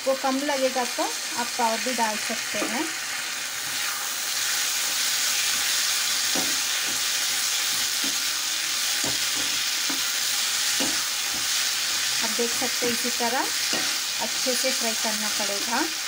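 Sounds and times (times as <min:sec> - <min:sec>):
vegetables sizzling in hot oil: 0:00.0 - 0:16.0
metal spatula scraping a pan: 0:05.4 - 0:14.9.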